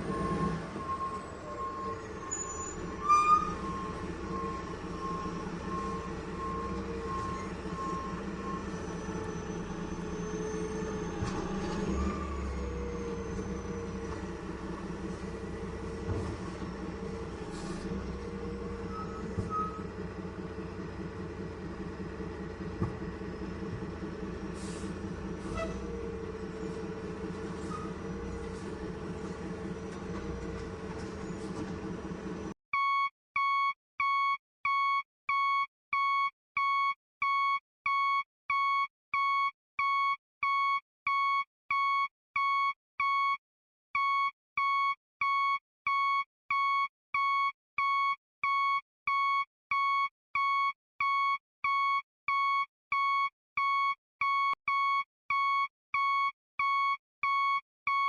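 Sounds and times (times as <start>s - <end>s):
vehicle rumble: 0.0s - 32.6s.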